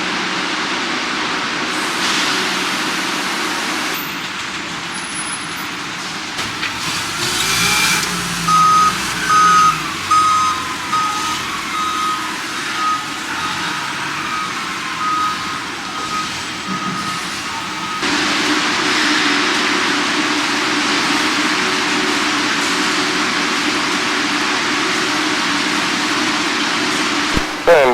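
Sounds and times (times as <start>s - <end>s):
reversing alarm beeping: 6.4s - 22.1s.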